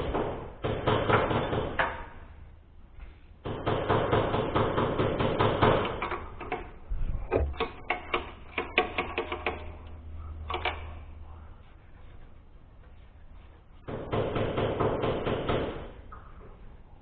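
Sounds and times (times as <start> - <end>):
sharp clicks and knocks: 3.4 - 11.1
faint low hum: 6.0 - 14.7.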